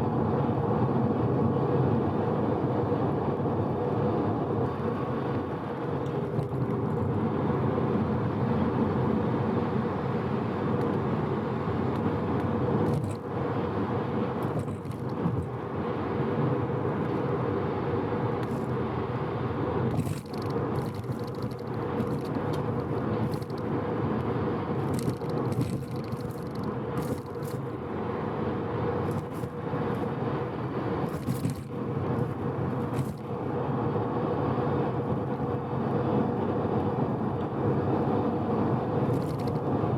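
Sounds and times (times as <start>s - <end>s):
tyre and road noise: 0.8s - 39.9s
rotary engine cruising: 11.9s - 13.3s, 14.3s - 15.7s, 18.2s - 27.8s, 28.9s - 33.8s, 39.0s - 39.8s.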